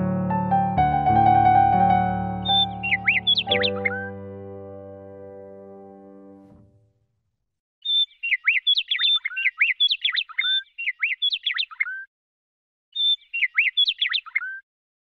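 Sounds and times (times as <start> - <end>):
songbird singing: 2.4 - 4.4, 7.8 - 12.1, 13.0 - 14.6.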